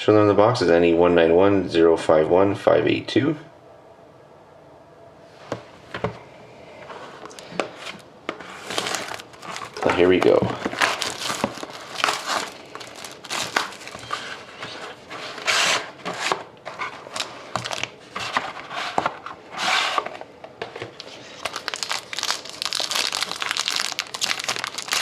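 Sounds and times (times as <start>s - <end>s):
plastic wrapping crinkling and tearing: 8.5s - 15.4s, 16.8s - 18.0s, 21.0s - 25.0s.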